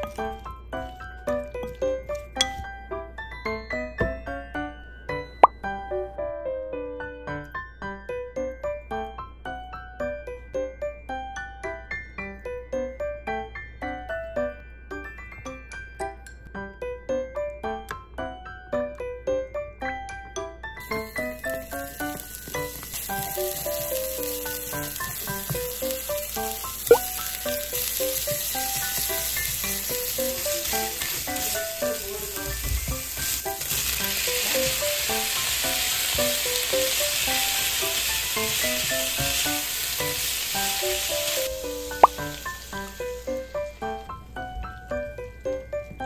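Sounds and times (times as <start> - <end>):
light background music: 0.0 - 46.0
meat sizzling in a frying pan: 20.8 - 44.8.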